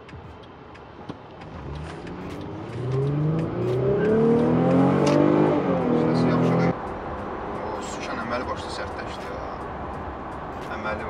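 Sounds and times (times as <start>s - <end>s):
car engine accelerating: 1.4s - 8.8s.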